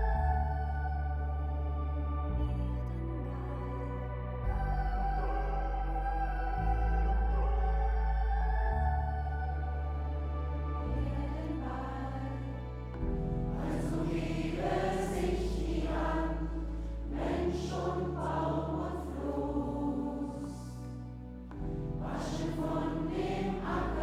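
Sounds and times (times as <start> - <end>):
sustained low bass notes: 0.0 - 24.0
choir singing: 11.0 - 24.0.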